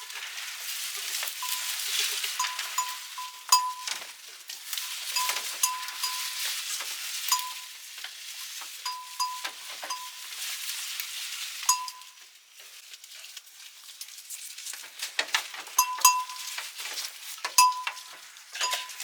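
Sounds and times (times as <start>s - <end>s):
small metallic clinks: 2.4s - 4.0s, 5.1s - 6.4s, 7.3s - 7.7s, 8.8s - 10.2s, 11.7s - 12.2s, 15.8s - 16.6s, 17.5s - 19.0s.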